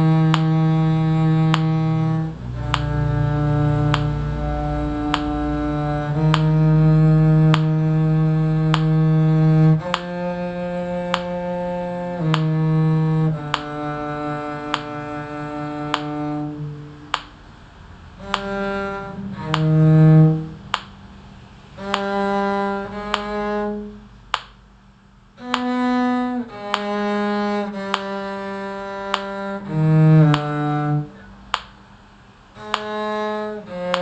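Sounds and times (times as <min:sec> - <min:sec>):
muted bowed low string notes: 0:00.0 - 0:24.4, 0:25.4 - 0:31.7, 0:32.4 - 0:34.0
metronome click: 0:02.6 - 0:03.0, 0:03.9 - 0:04.1, 0:05.1 - 0:05.4, 0:08.7 - 0:08.9, 0:09.8 - 0:10.1, 0:12.2 - 0:12.5, 0:18.3 - 0:18.5, 0:19.5 - 0:19.7, 0:25.4 - 0:25.7, 0:26.6 - 0:26.9.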